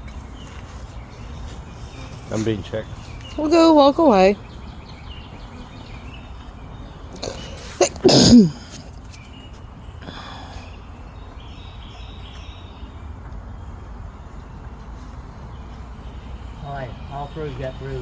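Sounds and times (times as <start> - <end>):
person vocal outburst: 7.2 - 8.6
breathy sound: 10.0 - 10.8.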